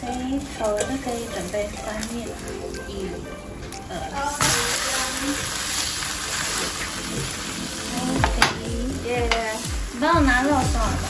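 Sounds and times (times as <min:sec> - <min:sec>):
pancake sizzling in a pan: 0:00.0 - 0:11.0
music with singing voice: 0:06.8 - 0:11.0.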